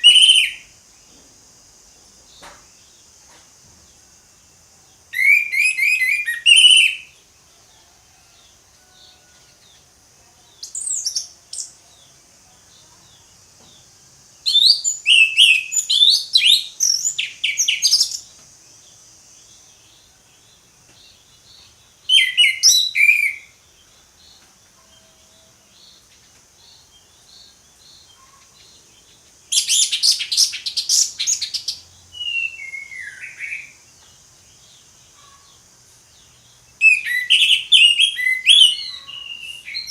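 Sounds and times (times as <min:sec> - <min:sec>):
thrush singing whistled song: 0:00.0 - 0:00.8, 0:05.1 - 0:07.2, 0:14.4 - 0:18.3, 0:22.0 - 0:23.6, 0:29.5 - 0:33.9, 0:36.8 - 0:39.9
faint steady high hiss: 0:00.0 - 0:39.9.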